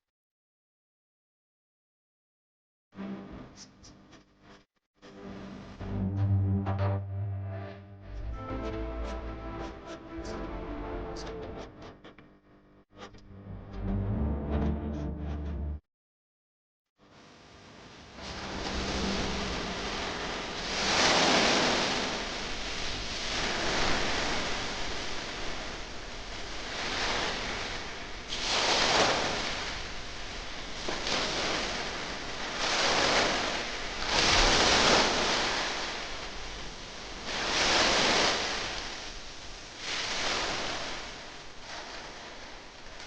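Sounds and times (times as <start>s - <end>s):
ocean waves breaking: 18.2s - 43.0s.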